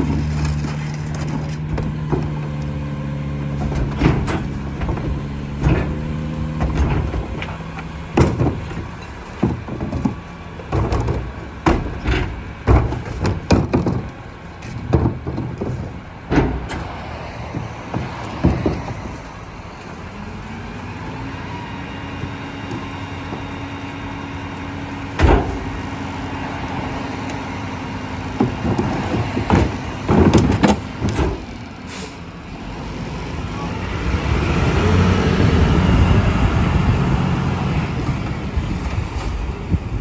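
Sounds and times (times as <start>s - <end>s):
garbage truck engine drone: 0.0s - 40.0s
hydraulic packer compacting trash: 0.0s - 40.0s
bangs and clanks: 3.4s - 19.4s, 25.1s - 27.6s, 28.2s - 31.5s.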